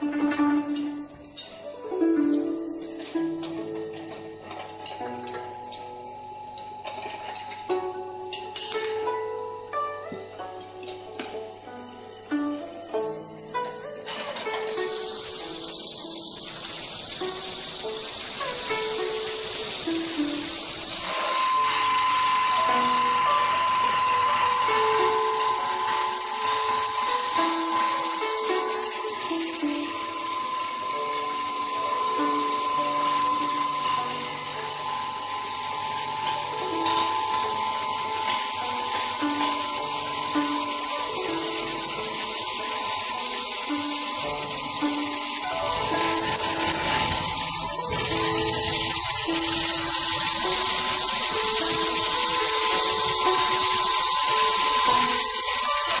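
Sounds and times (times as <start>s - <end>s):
grinding mill motor whine: 0.0s - 56.0s.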